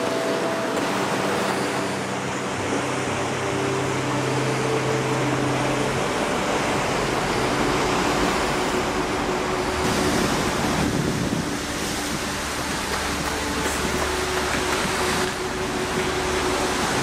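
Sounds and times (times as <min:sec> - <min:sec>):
waves breaking on rocks: 0:07.1 - 0:17.0.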